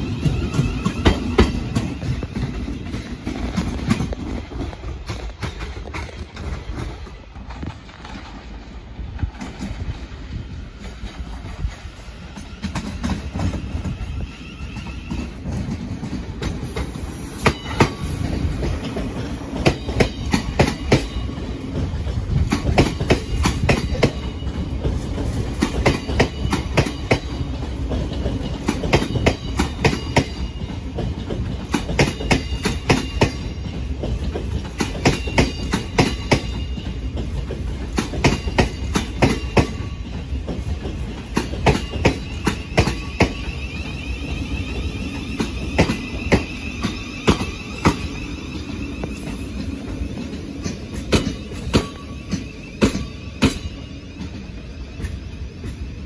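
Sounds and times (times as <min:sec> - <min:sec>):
electric train rumbling: 0:00.0 - 0:56.0
train wheels clicking over joints: 0:00.0 - 0:56.0.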